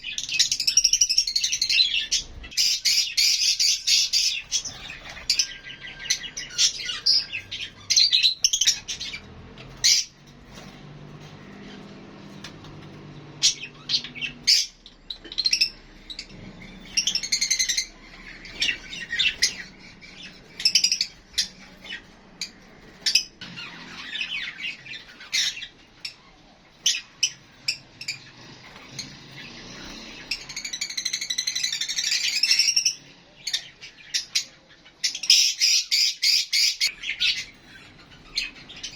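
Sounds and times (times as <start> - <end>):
lovebirds chirping and squawking: 0.0 - 38.9.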